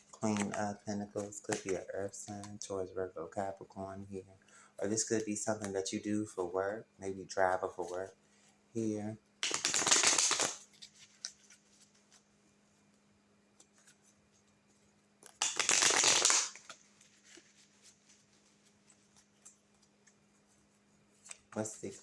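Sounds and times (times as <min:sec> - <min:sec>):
cards being shuffled: 0:00.1 - 0:02.5, 0:09.4 - 0:12.3, 0:15.2 - 0:20.2
cards tapping and clicking: 0:01.3 - 0:02.5, 0:09.4 - 0:10.6, 0:15.2 - 0:16.8.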